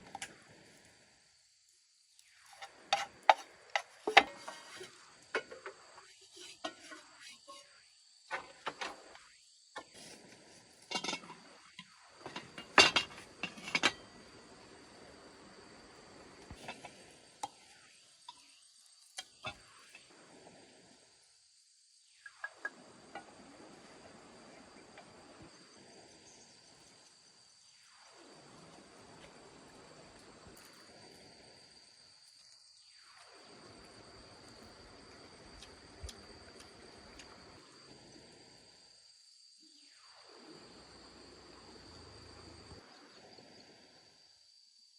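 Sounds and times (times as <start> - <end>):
insects trilling: 0.0 - 44.9
low background hiss: 0.0 - 44.9
utensils clinking against pots: 10.9 - 11.4, 12.2 - 14.1.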